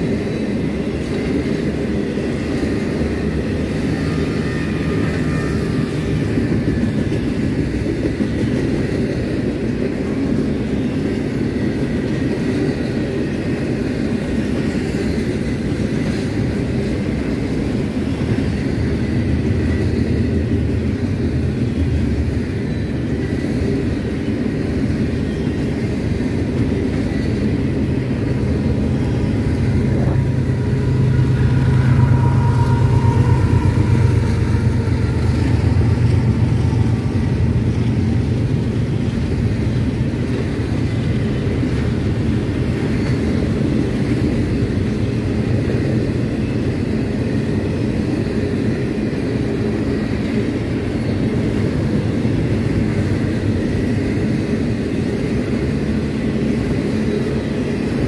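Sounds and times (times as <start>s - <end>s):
railcars rumbling on rails: 0.0s - 58.0s
deep drone: 27.3s - 40.4s.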